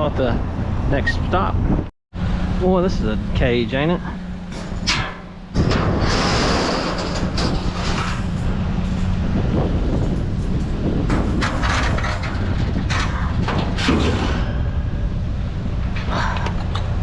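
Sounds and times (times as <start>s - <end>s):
low rumble: 0.0s - 17.0s
metal wire cage rattling: 4.5s - 9.1s, 9.9s - 14.9s.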